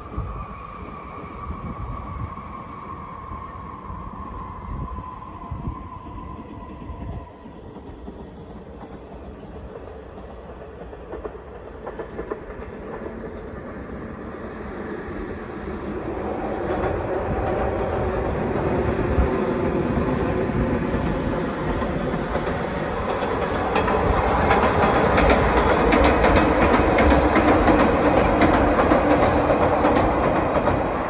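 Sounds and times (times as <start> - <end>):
train whine: 0.0 - 31.0
train wheels clattering on track: 6.6 - 31.0.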